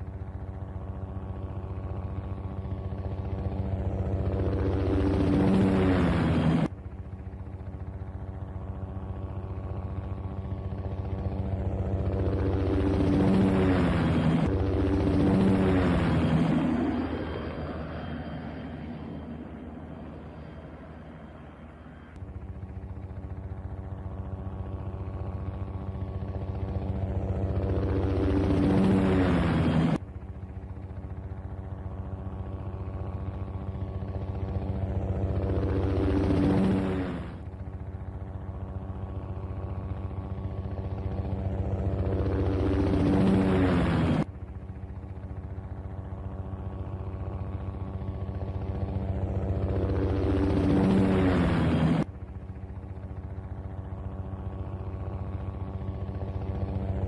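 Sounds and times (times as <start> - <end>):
helicopter rotor chop: 0.0 - 57.0.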